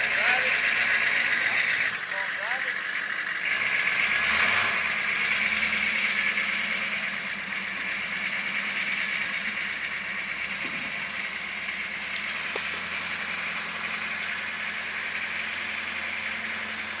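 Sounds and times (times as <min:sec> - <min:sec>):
monster truck engine running: 0:00.0 - 0:17.0
high whine: 0:04.7 - 0:17.0.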